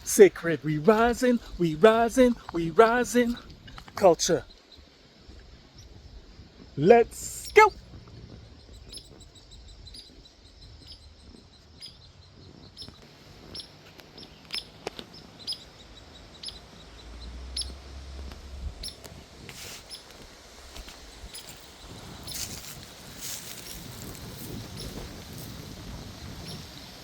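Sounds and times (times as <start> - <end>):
faint high bird chirps: 8.5 - 17.8, 21.2 - 25.0, 26.3 - 26.9
low rumble: 16.8 - 19.4.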